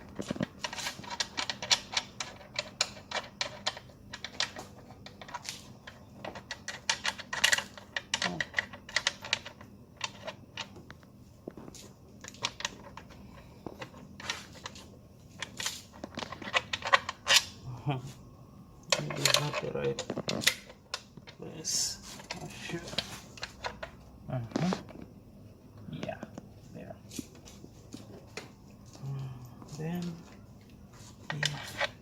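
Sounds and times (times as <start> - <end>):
hand tools clicking and tapping: 0.1 - 11.0.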